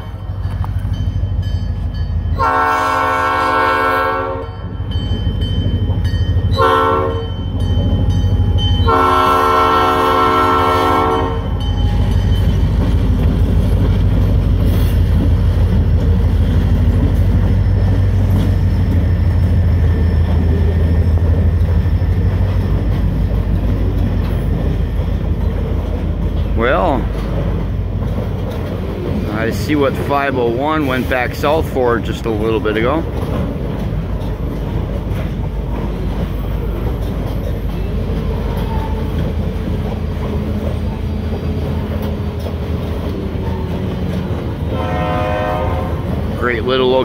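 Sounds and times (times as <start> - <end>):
locomotive air horn blasts: 2.4 - 4.6, 6.6 - 7.3, 8.8 - 11.6, 44.7 - 46.1
freight cars rolling over rails: 11.5 - 47.0.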